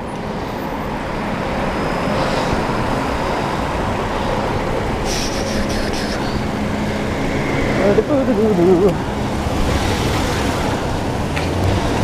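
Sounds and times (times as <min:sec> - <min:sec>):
vehicle engine hum: 0:00.0 - 0:12.0
wind and road noise: 0:00.0 - 0:12.0
high-pitched hissing pulses: 0:05.0 - 0:06.5.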